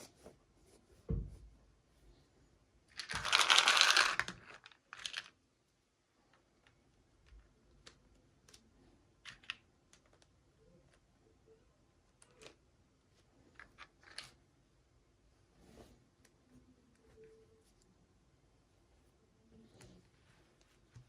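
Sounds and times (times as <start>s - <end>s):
packaging crinkling: 3.0s - 5.3s
small plastic pieces clicking: 3.0s - 5.3s.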